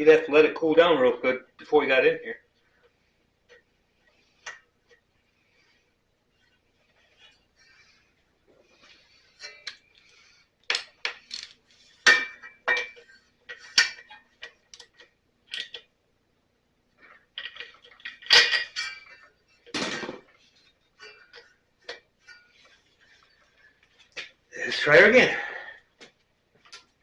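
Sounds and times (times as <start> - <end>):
metal tools clinking: 11.2 - 14.6, 17.4 - 19.3.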